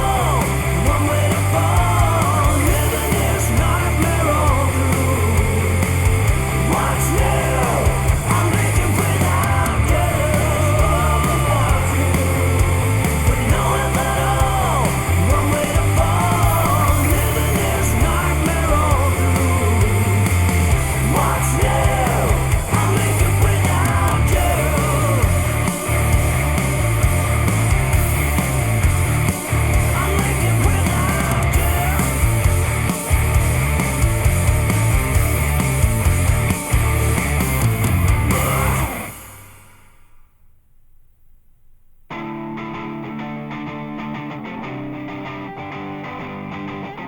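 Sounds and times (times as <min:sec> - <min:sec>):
rock music with bass line: 0:00.0 - 0:39.7, 0:42.1 - 0:47.0.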